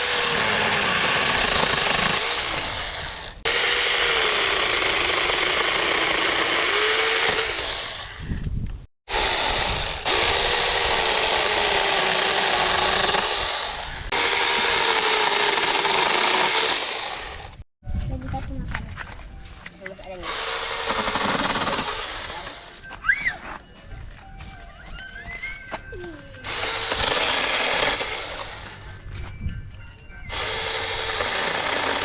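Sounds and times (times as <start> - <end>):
electric chainsaw cutting wood: 0.0 - 8.4, 9.1 - 17.6, 20.2 - 22.8, 26.4 - 28.9, 30.3 - 32.0.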